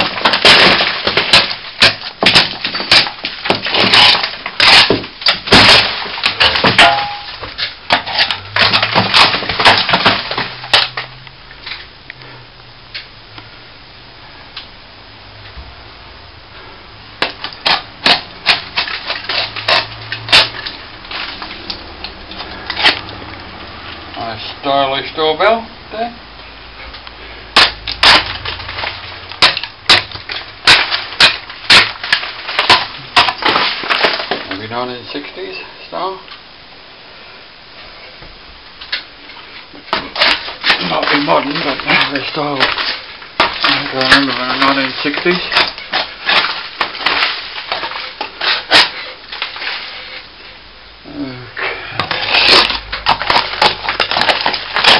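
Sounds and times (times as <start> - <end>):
plaster crunching and scraping: 0.0 - 11.8, 17.2 - 23.3, 27.3 - 34.8, 38.8 - 50.3, 52.0 - 54.9.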